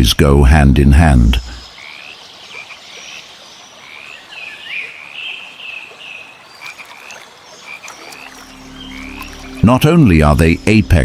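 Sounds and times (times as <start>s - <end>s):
frogs calling in chorus: 1.0s - 10.8s.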